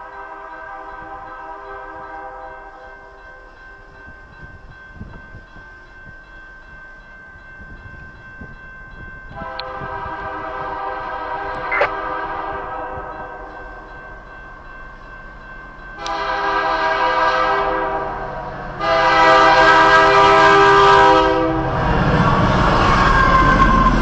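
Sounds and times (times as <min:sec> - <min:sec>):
train horn blasts: 0:00.0 - 0:02.9, 0:09.3 - 0:13.9, 0:16.0 - 0:24.0.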